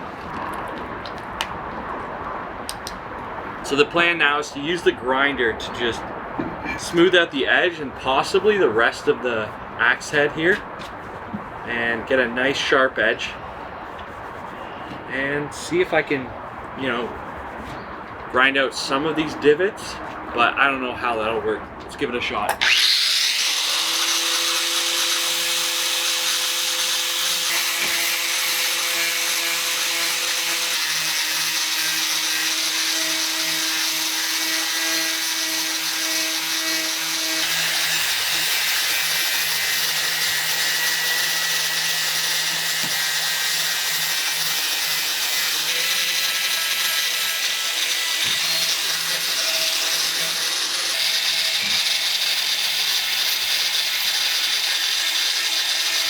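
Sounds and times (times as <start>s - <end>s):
angle grinder grinding steel: 22.6s - 56.0s.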